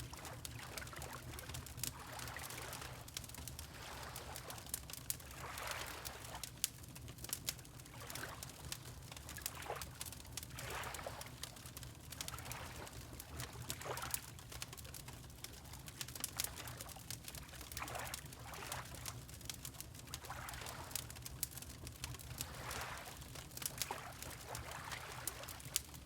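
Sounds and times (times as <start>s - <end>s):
wood fire crackling: 0.0s - 26.0s
water lapping: 0.2s - 6.4s, 10.6s - 11.3s, 17.7s - 19.1s, 20.2s - 20.9s, 22.4s - 25.9s.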